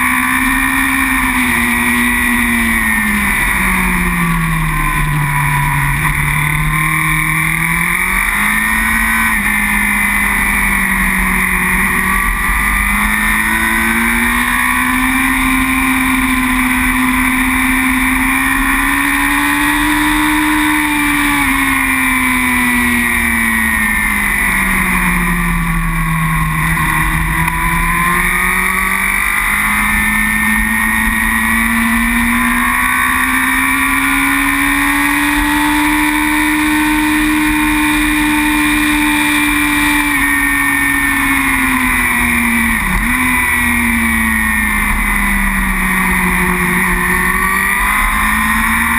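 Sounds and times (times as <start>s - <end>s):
superbike engine revving: 0.0s - 48.9s.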